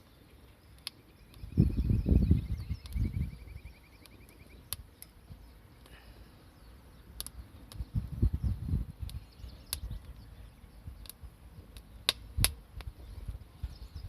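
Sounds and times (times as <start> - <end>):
campfire crackling: 0.0 - 1.6, 2.5 - 13.6
sharp pops of fire: 0.7 - 1.5, 2.7 - 3.1, 4.0 - 5.2, 7.2 - 8.4, 9.0 - 10.2, 11.0 - 13.0.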